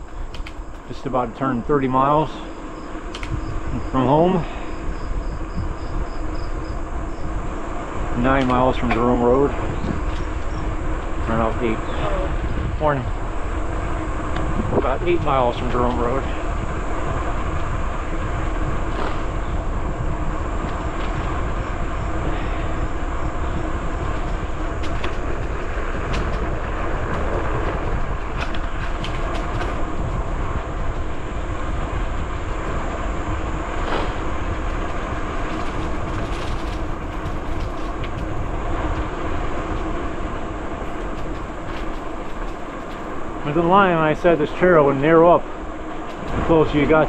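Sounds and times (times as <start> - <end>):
bicycle tyres rumbling: 0.0 - 47.0
wind on microphone: 0.0 - 47.0
clicks and rattles from bumps: 24.0 - 30.0, 34.9 - 38.5, 40.8 - 43.1.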